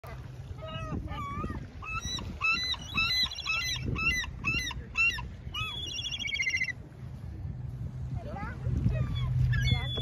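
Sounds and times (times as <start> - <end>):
birds calling sharply: 1.8 - 6.7.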